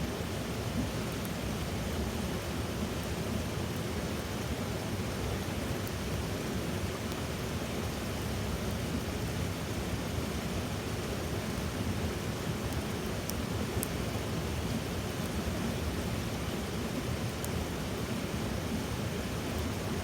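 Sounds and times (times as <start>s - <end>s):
fire crackles: 12.5s - 18.2s.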